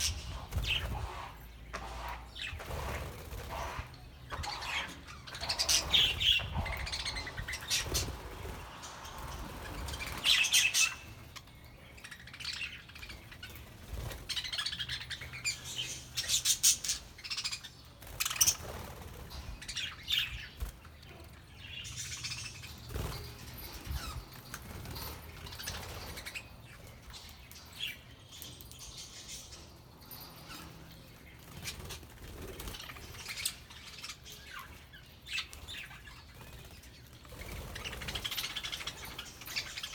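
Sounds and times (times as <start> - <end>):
budgerigars chirping: 3.4 - 13.6
wings flapping: 5.5 - 11.2.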